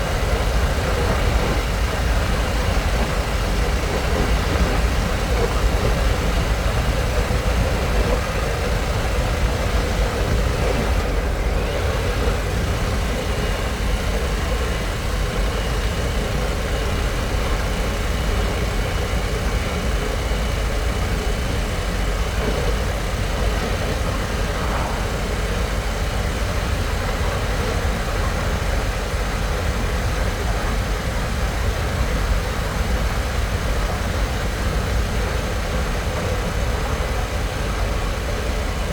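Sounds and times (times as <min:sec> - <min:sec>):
wind rushing on microphone: 0:00.0 - 0:38.9.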